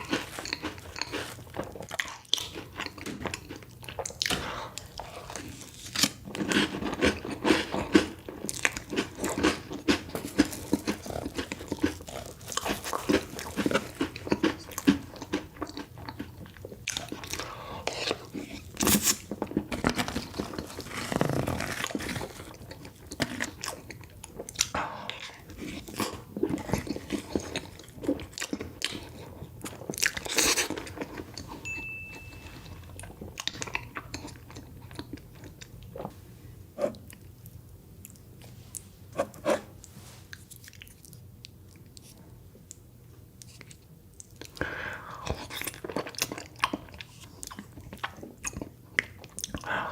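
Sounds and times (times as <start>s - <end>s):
crunchy bites and chewing: 0.0s - 31.4s.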